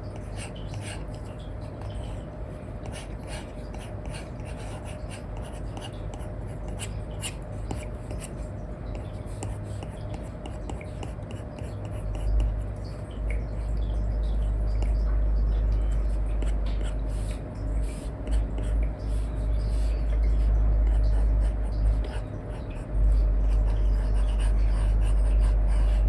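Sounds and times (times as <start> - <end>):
stylus scratching on screen: 15.8 - 26.0.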